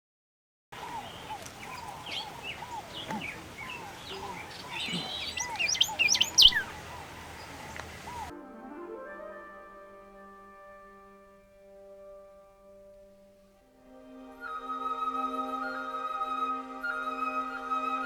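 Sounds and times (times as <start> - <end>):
birds short arched calls: 0.8 - 8.3
high quick bird chirps and trills: 0.8 - 8.3.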